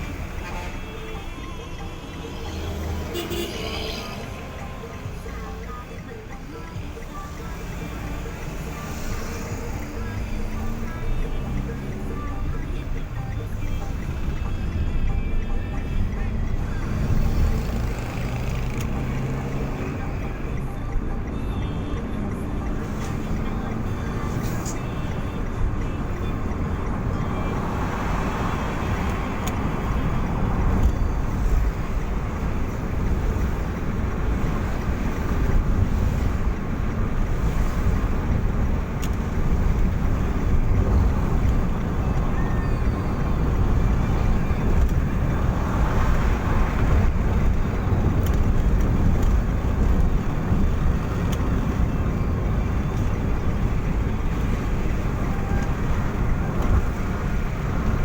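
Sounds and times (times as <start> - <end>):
engine and road rumble: 0.0 - 58.0.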